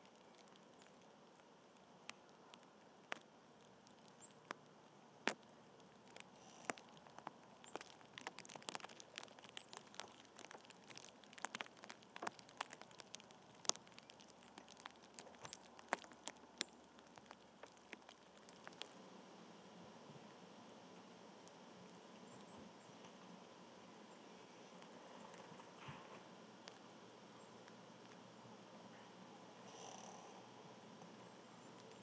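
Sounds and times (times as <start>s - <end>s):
sharp light clicks and taps: 0.0s - 19.0s
faint steady hiss: 0.0s - 32.0s.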